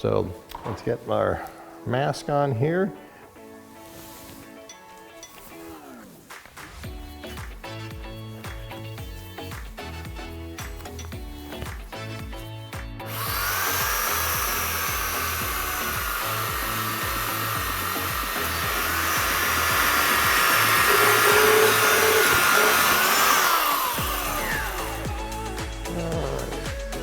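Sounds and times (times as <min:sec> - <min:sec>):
power sander on wood: 0:13.0 - 0:27.0.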